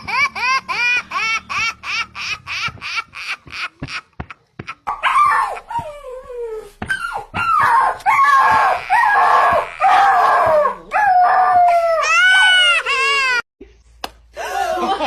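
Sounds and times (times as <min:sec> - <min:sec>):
howling cries: 0:04.9 - 0:13.4.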